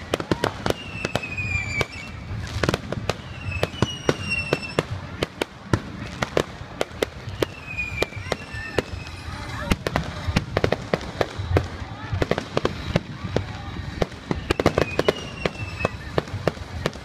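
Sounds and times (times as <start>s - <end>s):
falling firework whistles: 0.0s - 5.3s, 6.0s - 10.6s, 13.9s - 17.0s
firework bangs and crackles: 0.0s - 17.0s.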